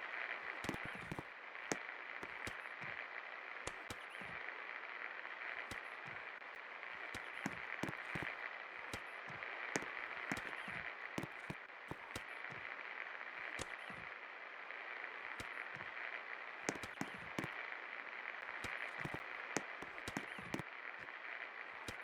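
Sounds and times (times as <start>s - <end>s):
sharp clicks and crackles: 0.5s - 4.4s, 5.6s - 12.7s, 13.5s - 14.1s, 16.6s - 17.6s, 18.4s - 21.2s.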